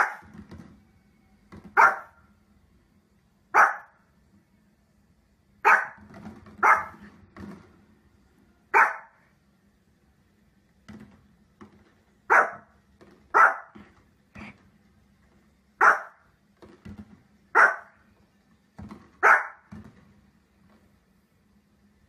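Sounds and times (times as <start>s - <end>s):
small dog barking: 0.0s - 0.3s, 1.7s - 2.2s, 3.5s - 4.0s, 5.6s - 6.0s, 6.6s - 7.0s, 8.7s - 9.2s, 12.3s - 12.7s, 13.3s - 13.8s, 15.8s - 16.2s, 17.5s - 18.0s, 19.2s - 19.7s.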